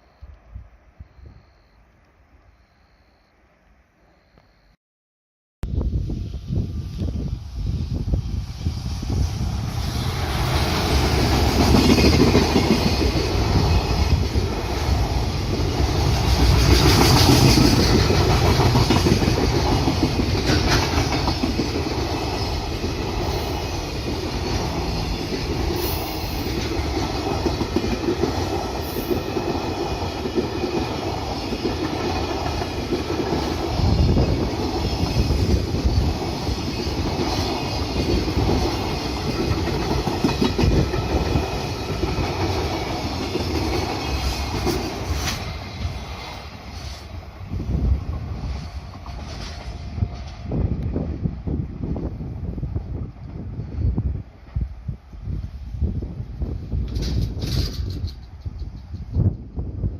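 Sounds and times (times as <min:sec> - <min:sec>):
train wheels clacking on rails: 0:09.1 - 0:50.6, 0:56.8 - 0:59.5.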